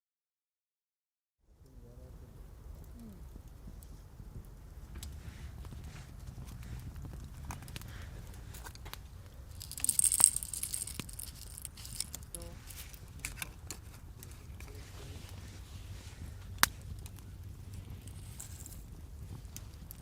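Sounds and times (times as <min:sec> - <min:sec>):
charcoal fire crackling: 0:01.5 - 0:20.0
sharp snap of fire: 0:16.1 - 0:20.0.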